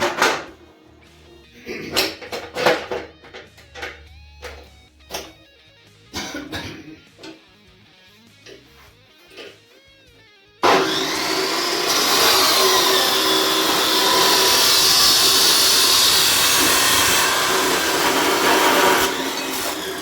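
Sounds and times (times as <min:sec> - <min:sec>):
power tool motor whining: 0:10.6 - 0:20.0.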